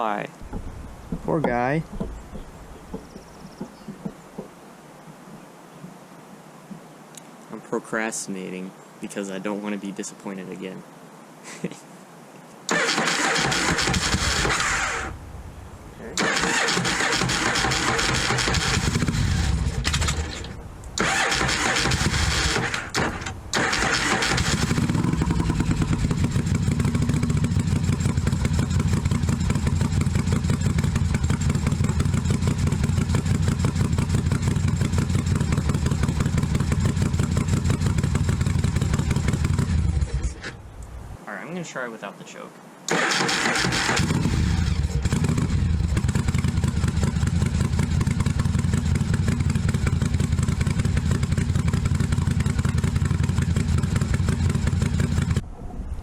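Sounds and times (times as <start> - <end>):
motorcycle electric starter cranking: 12.7 - 15.2, 16.2 - 40.2, 42.9 - 55.4
motorcycle engine idling: 16.2 - 40.3, 43.9 - 55.4.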